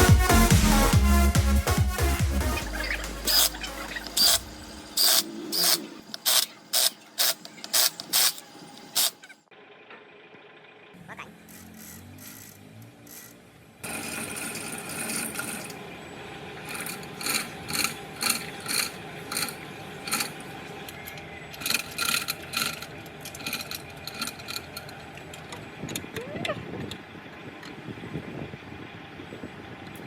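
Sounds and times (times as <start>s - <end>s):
hand scraping rusted metal: 11.4s - 15.8s, 16.6s - 20.6s, 21.5s - 25.6s.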